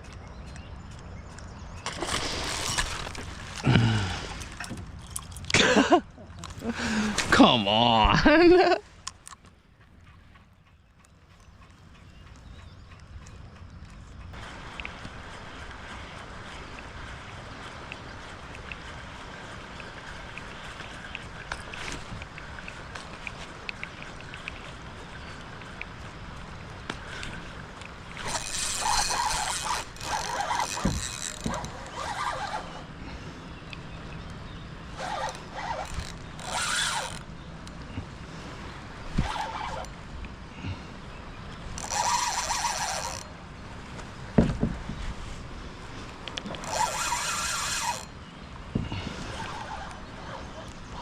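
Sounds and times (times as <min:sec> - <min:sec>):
water splashing: 0:01.8 - 0:04.8
fishing reel whirring: 0:28.1 - 0:32.9, 0:34.9 - 0:37.3, 0:41.7 - 0:43.3, 0:46.6 - 0:48.2.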